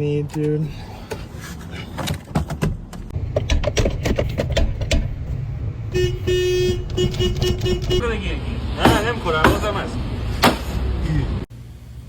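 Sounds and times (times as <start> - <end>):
metallic knocks and clanks: 2.0 - 8.0
car horn honking: 5.4 - 8.1.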